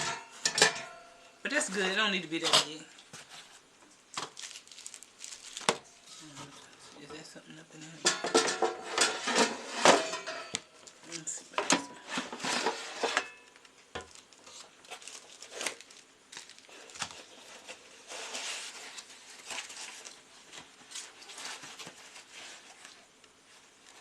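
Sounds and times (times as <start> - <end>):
packaging rustling and crinkling: 3.0 - 7.1, 12.3 - 24.0.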